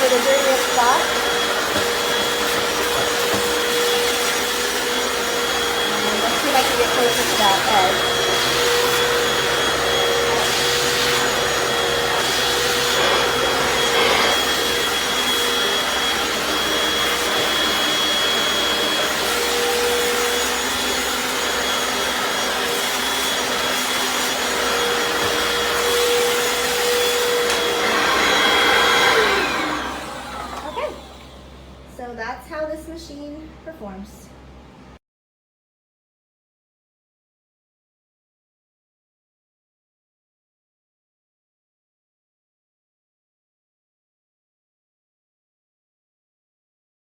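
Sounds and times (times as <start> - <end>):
rushing suction noise: 0.0 - 19.6
floor cleaner motor whine: 0.0 - 33.1.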